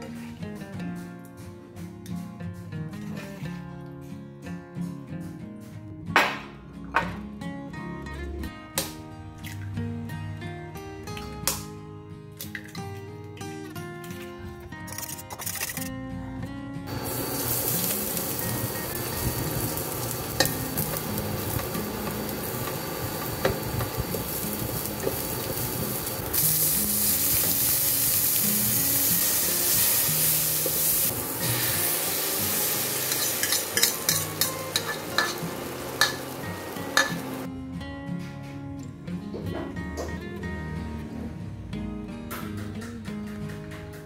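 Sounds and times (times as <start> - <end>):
shallots and tomatoes sizzling in oil: 16.9 - 37.5.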